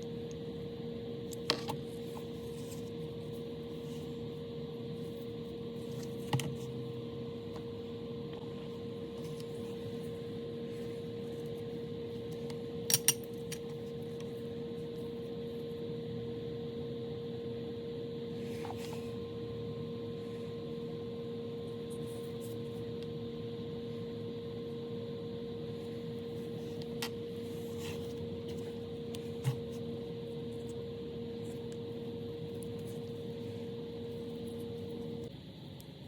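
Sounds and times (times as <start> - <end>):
steady electrical hum: 0.0 - 36.0.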